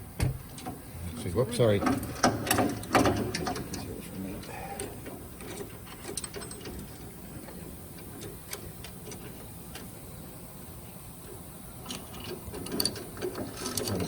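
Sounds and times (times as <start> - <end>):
roller chain links clicking: 1.8 - 9.4, 11.8 - 14.0.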